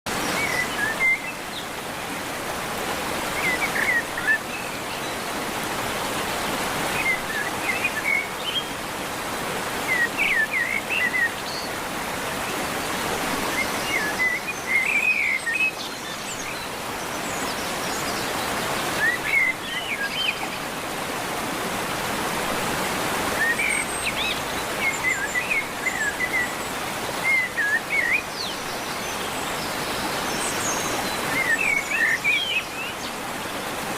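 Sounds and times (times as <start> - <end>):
birds chirping: 23.0 - 33.9.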